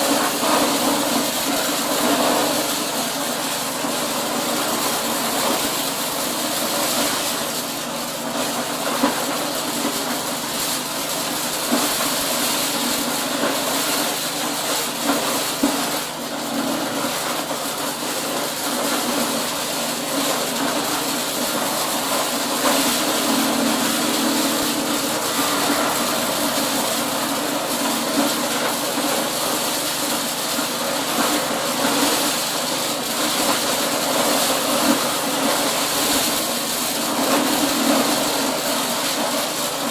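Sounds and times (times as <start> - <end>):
corn shelling machine rattling: 0.0 - 39.9.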